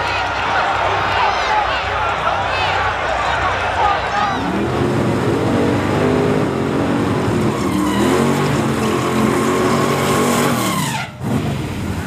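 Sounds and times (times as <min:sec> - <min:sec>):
drag car engine revving: 0:04.3 - 0:12.0.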